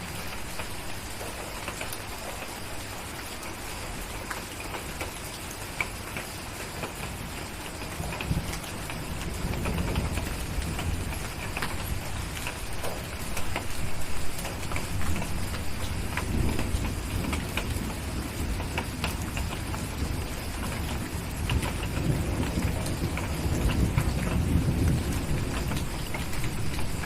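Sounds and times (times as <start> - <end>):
steady rain: 0.0 - 27.0
distant thunder rumbling: 7.5 - 27.0.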